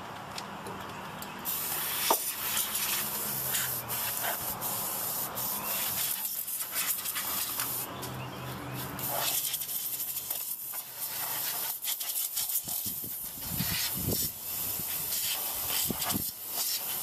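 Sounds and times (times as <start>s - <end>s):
compressed air spraying: 1.4s - 7.9s, 8.8s - 17.0s.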